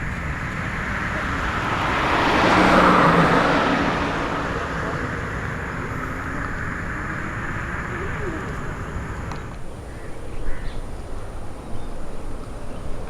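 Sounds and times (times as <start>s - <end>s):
road vehicle passing: 0.0s - 9.6s.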